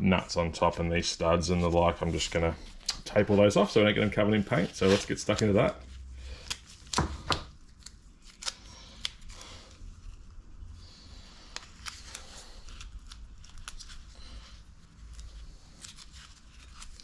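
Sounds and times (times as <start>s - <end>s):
masking tape ripping off roll: 4.5s - 5.7s.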